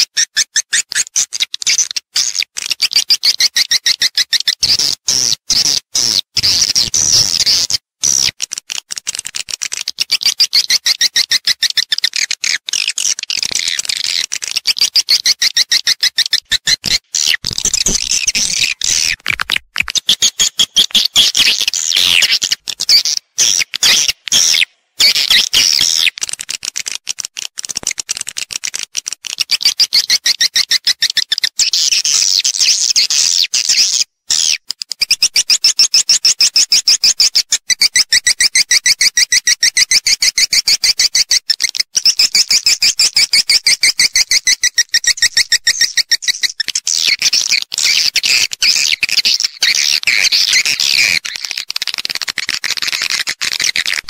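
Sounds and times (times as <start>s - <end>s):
swiftlet twittering calls: 15.5s - 19.2s, 20.0s - 26.2s.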